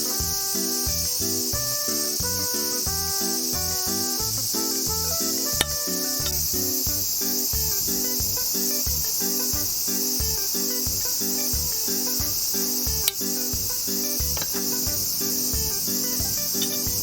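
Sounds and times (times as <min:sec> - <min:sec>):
background music with low beat: 0:00.0 - 0:17.0
crickets chirping: 0:00.0 - 0:17.0
sharp click: 0:10.3 - 0:13.4, 0:14.2 - 0:15.0.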